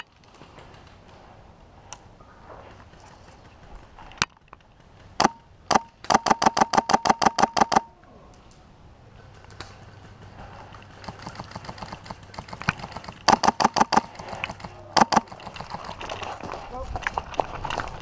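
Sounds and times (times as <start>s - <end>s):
airsoft gun shots: 5.2s - 7.9s, 11.0s - 16.0s.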